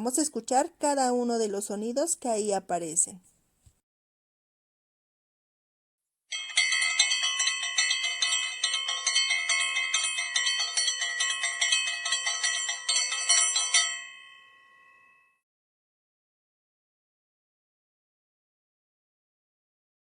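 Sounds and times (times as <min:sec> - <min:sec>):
metal bell ringing rapidly: 0:06.3 - 0:15.3.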